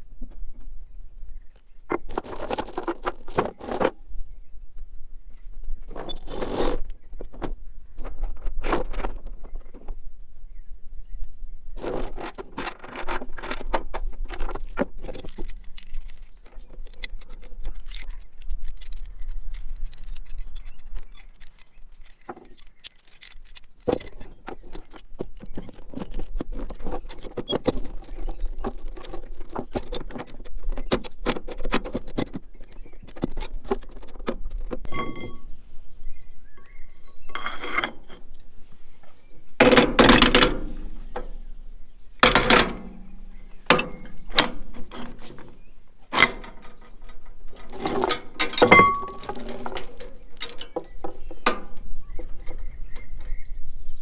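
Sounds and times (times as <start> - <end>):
metal clinking and rattling: 11.8 - 35.6, 39.4 - 53.4
ringing metallic clang: 34.9 - 35.5, 48.4 - 49.2.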